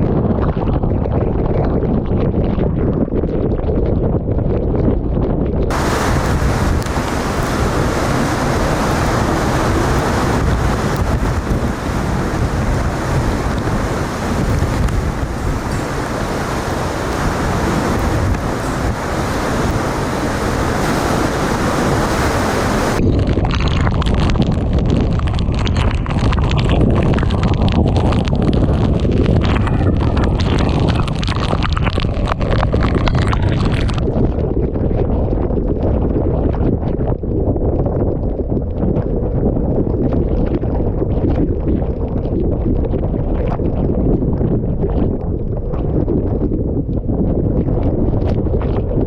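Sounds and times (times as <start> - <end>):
wind buffeting microphone: 0.0 - 49.0
wind roaring: 0.0 - 49.0
lashing rain: 5.7 - 23.0, 25.1 - 34.1
rapid crackling hits: 5.7 - 34.2.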